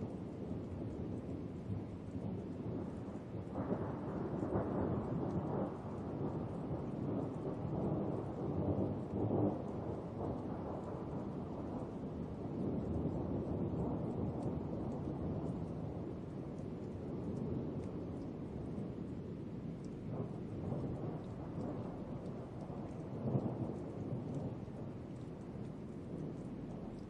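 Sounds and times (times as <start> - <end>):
steady rain: 0.0 - 27.0
thunder rumbling: 19.9 - 27.0.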